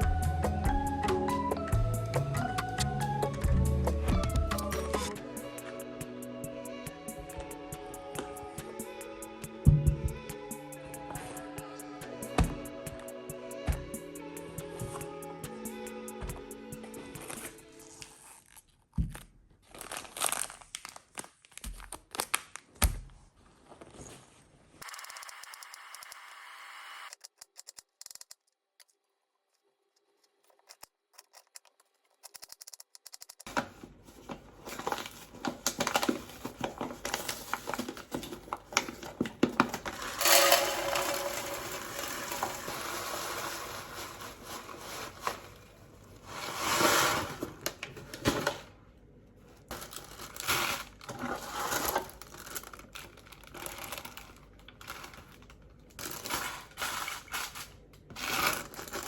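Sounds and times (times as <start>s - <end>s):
crinkling and rustling: 16.9s - 24.8s, 27.4s - 48.7s, 49.4s - 59.0s
dishes and utensils clattering: 39.6s - 45.4s.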